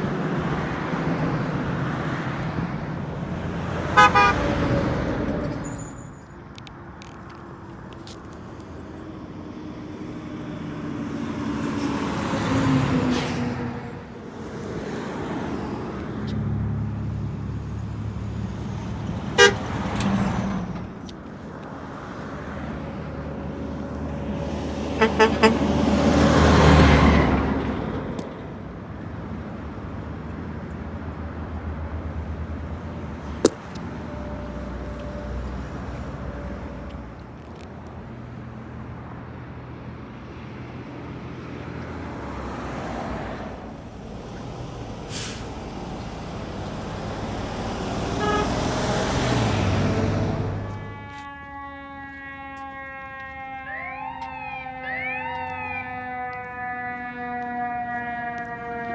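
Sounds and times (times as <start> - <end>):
road traffic passing: 0.0 - 58.9
car horn toots: 4.0 - 4.6, 19.4 - 19.8, 25.0 - 25.7, 48.2 - 48.7, 50.2 - 53.3.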